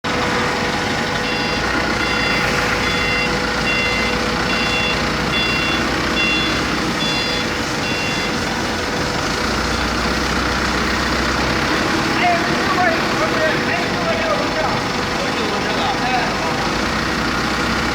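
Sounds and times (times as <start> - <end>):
industrial machinery hum: 0.0 - 17.9
electronic warning beeps: 1.1 - 8.5.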